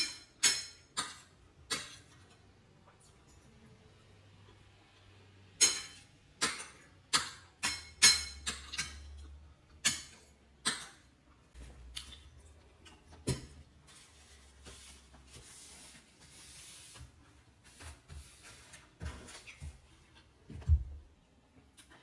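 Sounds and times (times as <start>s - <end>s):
utensil clinking against a dish: 0.0s - 2.4s, 5.6s - 11.1s.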